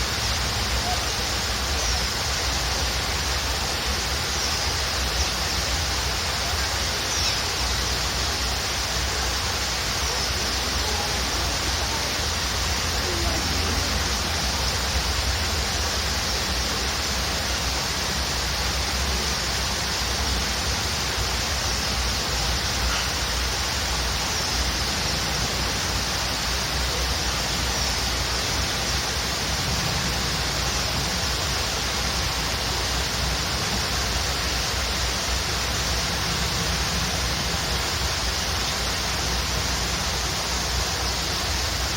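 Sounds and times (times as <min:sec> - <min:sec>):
waterfall rushing: 0:00.0 - 0:41.9
faint high bird chirps: 0:04.2 - 0:05.6, 0:06.4 - 0:07.8, 0:22.8 - 0:23.3.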